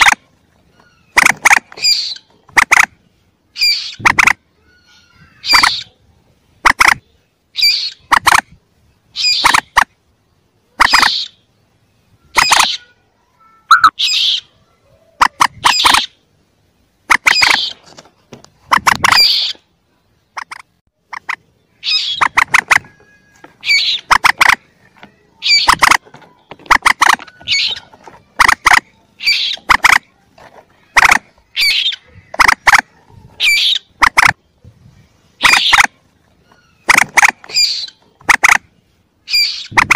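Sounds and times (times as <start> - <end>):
young moorhen calls: 0.0 - 8.5, 9.1 - 9.9, 10.7 - 11.6, 12.2 - 16.3, 17.1 - 17.8, 18.7 - 19.7, 20.3 - 30.2, 30.8 - 34.5, 35.4 - 39.9.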